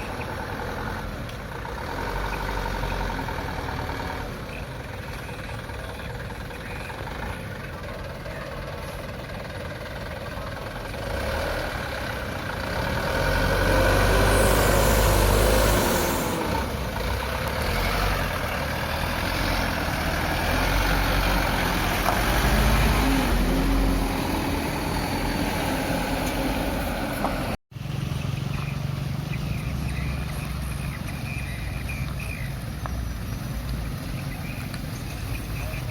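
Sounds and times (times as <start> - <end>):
truck engine revving: 0.0 - 27.6.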